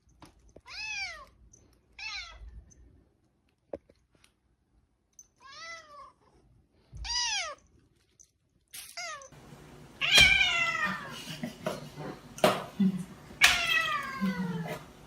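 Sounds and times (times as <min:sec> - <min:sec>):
cat meowing: 0:07.0 - 0:07.6, 0:10.0 - 0:11.1, 0:13.4 - 0:14.8.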